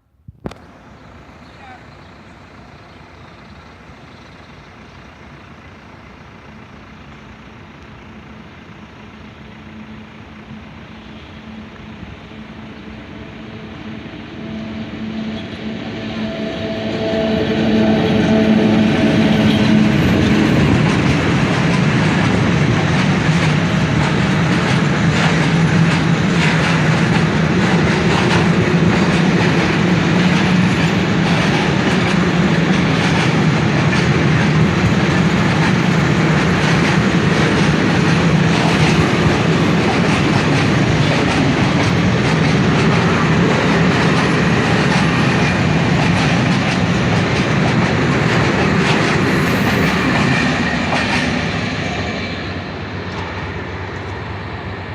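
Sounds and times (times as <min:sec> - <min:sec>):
train wheels clattering over rail joints: 0:18.2 - 0:54.3.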